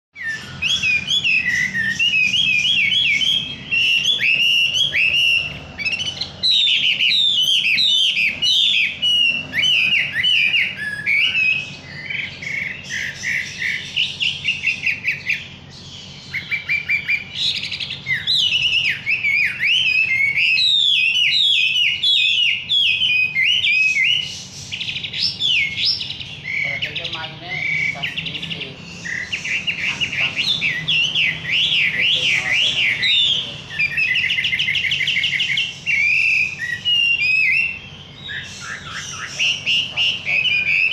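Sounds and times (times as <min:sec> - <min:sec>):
songbird singing: 0:00.1 - 0:40.9.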